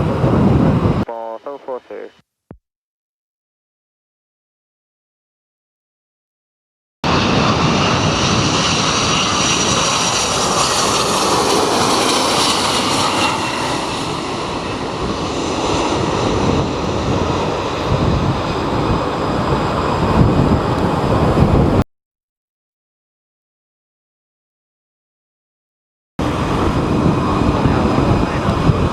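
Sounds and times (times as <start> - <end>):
wind buffeting microphone: 0.0 - 1.0, 14.2 - 21.8, 26.2 - 28.9
jet engine whine: 0.0 - 2.1, 7.0 - 21.8, 26.2 - 28.9.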